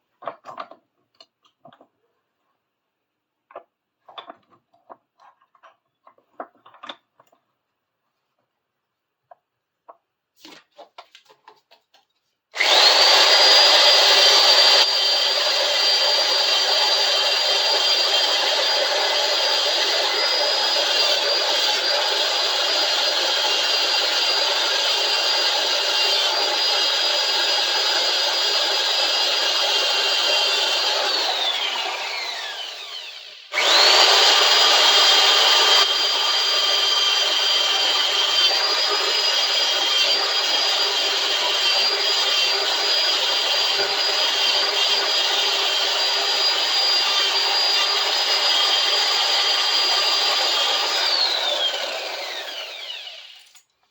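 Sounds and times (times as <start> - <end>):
small power tool whining: 12.6 - 53.7.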